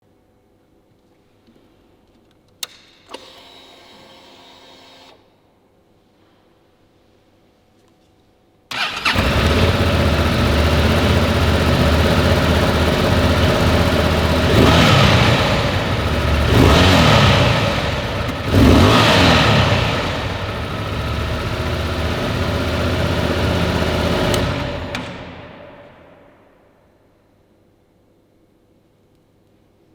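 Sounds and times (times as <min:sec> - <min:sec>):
motorcycle engine idling and revving: 0:08.7 - 0:26.3
motorcycle engine starting: 0:08.7 - 0:26.5.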